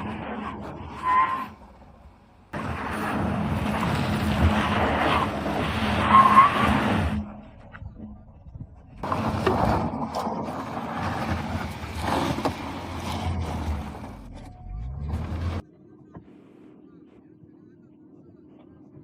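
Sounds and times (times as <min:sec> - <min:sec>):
tyres skidding: 0:00.0 - 0:15.6
car engine working hard: 0:01.5 - 0:16.2.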